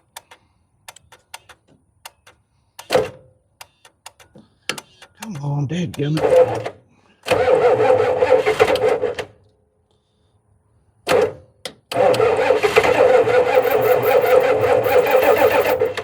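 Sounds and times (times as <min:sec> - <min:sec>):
diesel engine starter cranking: 0:11.9 - 0:16.0.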